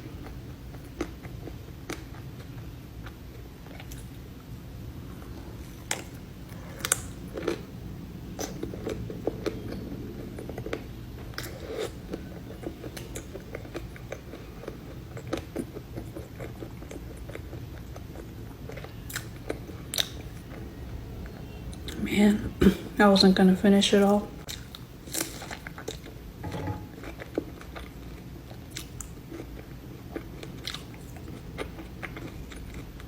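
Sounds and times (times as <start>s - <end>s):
chewing pastry: 0.0s - 23.0s, 24.0s - 26.3s, 26.9s - 33.0s.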